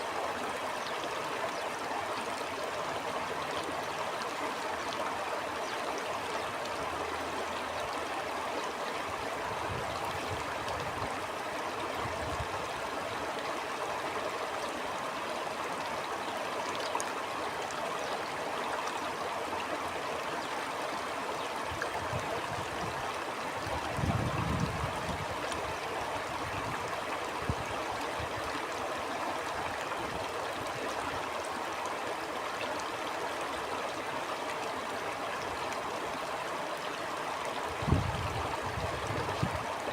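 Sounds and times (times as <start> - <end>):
stream flowing: 0.0 - 39.9
low rumbles of wind: 23.7 - 26.8, 37.8 - 39.9.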